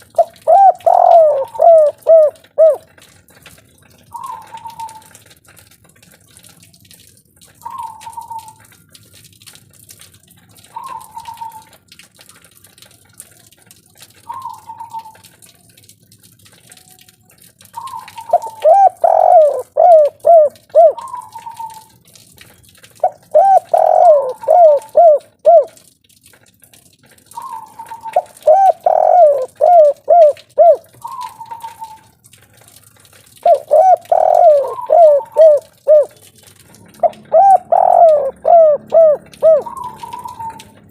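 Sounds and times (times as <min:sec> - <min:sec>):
dove cooing: 0:00.1 - 0:03.0, 0:04.1 - 0:05.2, 0:17.8 - 0:21.8, 0:23.0 - 0:25.8, 0:27.4 - 0:32.0, 0:33.4 - 0:36.2, 0:36.9 - 0:40.8.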